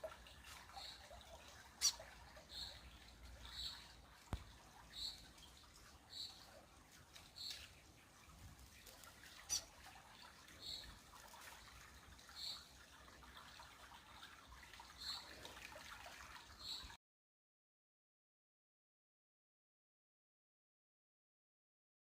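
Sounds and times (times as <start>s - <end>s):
creek water trickling: 0.0s - 17.0s.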